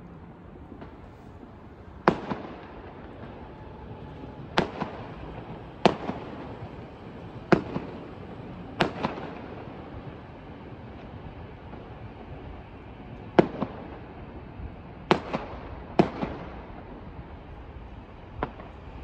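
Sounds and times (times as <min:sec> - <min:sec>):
faint firework crack: 0:00.6 - 0:17.5, 0:18.3 - 0:19.0
firework shells bursting: 0:01.9 - 0:10.4.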